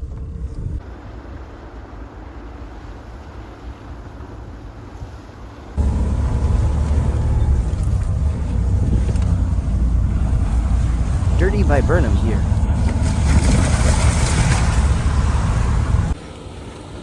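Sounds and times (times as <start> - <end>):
off-road vehicle engine rumbling: 0.0 - 0.8, 5.8 - 17.0.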